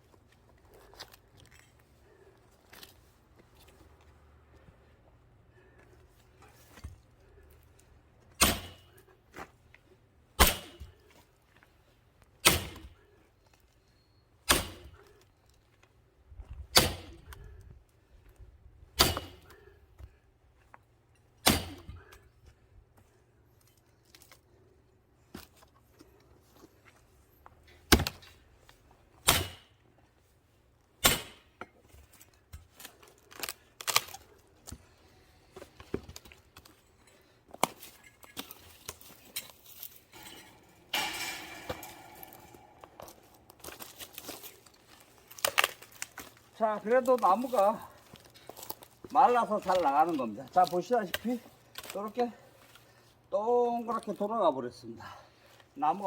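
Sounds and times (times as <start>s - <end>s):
splitting blade striking wood: 8.4s - 8.9s, 10.4s - 10.9s, 12.4s - 12.9s, 14.5s - 15.0s, 16.8s - 17.2s, 19.0s - 19.5s, 21.4s - 21.9s, 29.2s - 29.7s, 31.0s - 31.5s.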